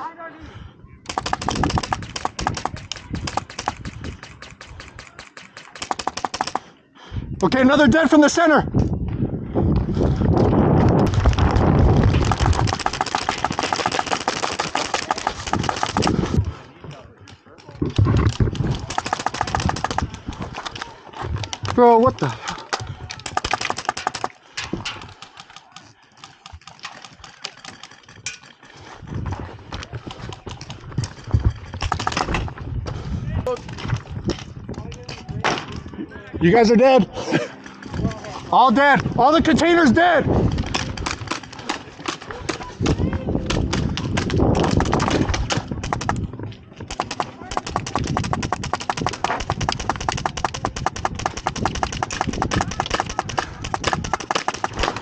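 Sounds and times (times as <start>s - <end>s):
airsoft guns firing: 1.1s - 6.7s, 11.1s - 16.4s, 18.4s - 20.9s, 22.5s - 24.4s, 31.8s - 32.4s, 40.6s - 55.0s.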